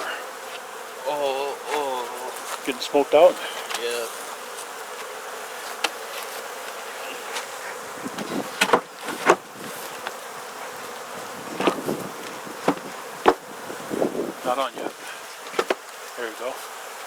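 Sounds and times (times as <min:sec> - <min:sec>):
bees buzzing: 0:00.0 - 0:17.0
sharp clicks and knocks: 0:15.4 - 0:15.8.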